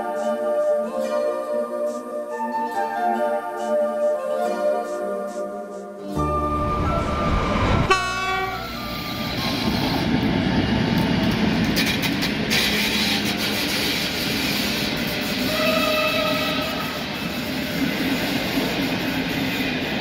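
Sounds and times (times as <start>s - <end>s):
high-pitched tone: 6.0s - 9.4s
train coaches rumbling past: 6.2s - 20.0s.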